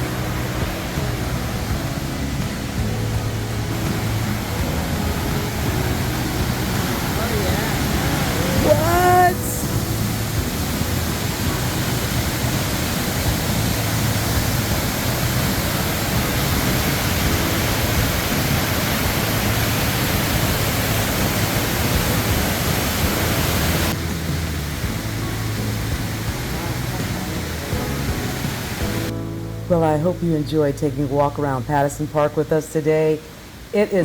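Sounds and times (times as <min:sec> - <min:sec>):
waterfall rushing water: 0:00.0 - 0:29.2, 0:33.2 - 0:33.8.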